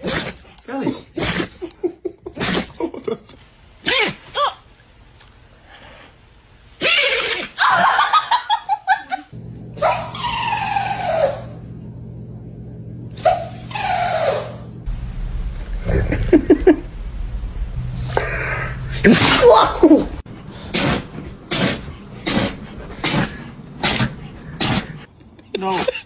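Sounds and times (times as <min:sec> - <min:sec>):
person laughing: 0:07.6 - 0:09.3, 0:15.8 - 0:17.0, 0:18.2 - 0:20.2, 0:25.1 - 0:26.0
dog sneezing: 0:20.6 - 0:25.0.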